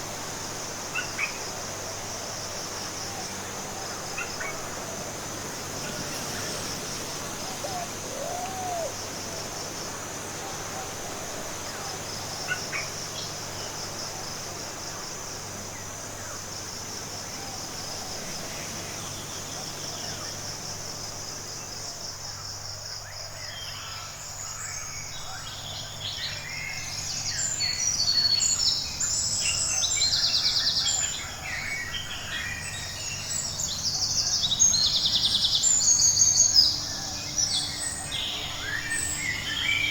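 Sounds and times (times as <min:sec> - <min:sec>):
small birds chirping: 0:05.4 - 0:09.3.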